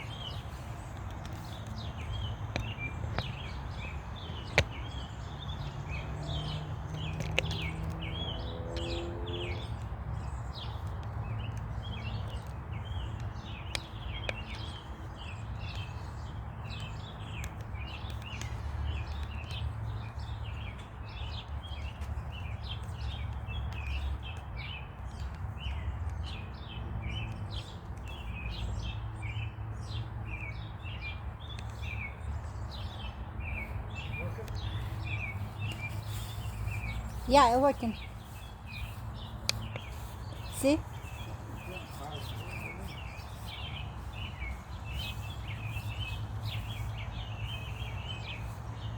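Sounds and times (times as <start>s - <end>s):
small birds chirping: 0.0s - 48.9s
faint clicks: 39.4s - 40.7s.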